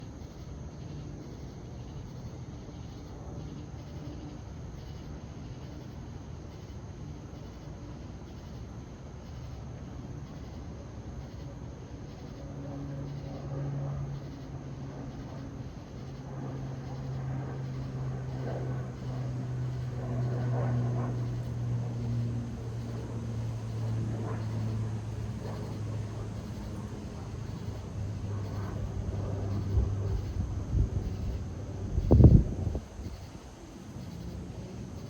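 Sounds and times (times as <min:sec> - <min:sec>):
propeller plane flying by: 0:00.0 - 0:35.0
wind buffeting microphone: 0:24.0 - 0:33.4.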